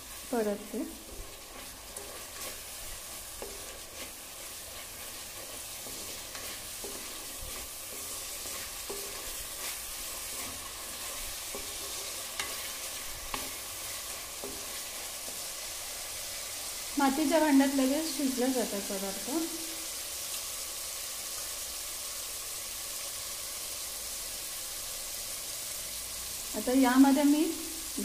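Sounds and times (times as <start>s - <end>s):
paste sizzling in hot oil: 0.0s - 28.0s
wooden spatula tapping pot: 5.4s - 13.6s.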